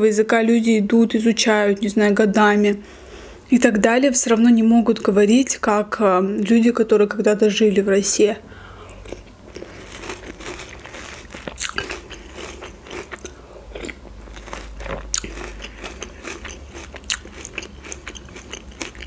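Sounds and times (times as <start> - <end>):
person crunching cereal: 8.9 - 19.0.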